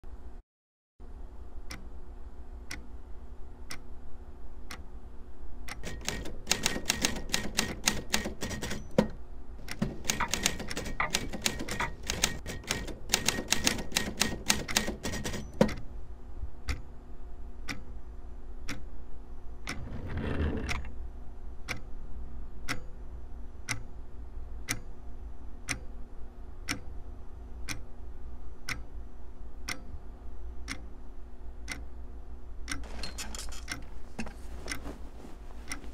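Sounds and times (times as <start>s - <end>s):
faint steady hum: 0.1s - 0.4s, 1.0s - 35.9s
clock ticking: 2.6s - 2.9s, 5.7s - 15.8s, 18.6s - 18.9s, 22.7s - 23.0s, 26.6s - 26.9s, 27.6s - 27.9s, 28.6s - 28.9s, 29.6s - 29.9s, 30.6s - 30.9s, 31.6s - 31.9s
typewriter keystrokes: 5.8s - 8.9s, 9.8s - 15.6s.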